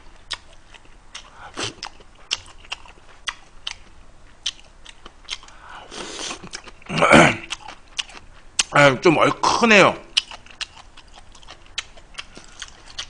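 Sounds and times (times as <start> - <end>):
man chewing food: 0.0 - 8.8, 10.1 - 13.0
loud breathy puff: 5.6 - 6.4.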